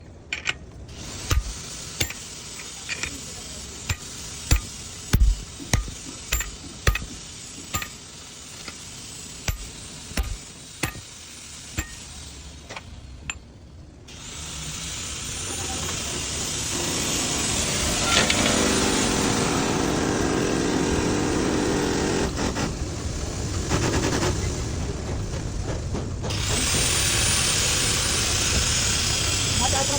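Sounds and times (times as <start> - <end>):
power tool running: 0.9 - 12.4, 14.1 - 22.4
metal-on-metal knocks: 1.3 - 2.3, 3.9 - 8.0, 9.5 - 11.1.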